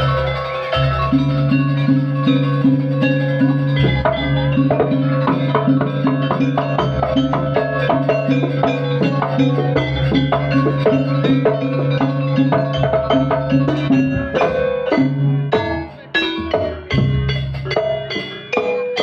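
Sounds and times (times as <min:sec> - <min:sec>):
percussion music with drums: 0:00.0 - 0:19.0.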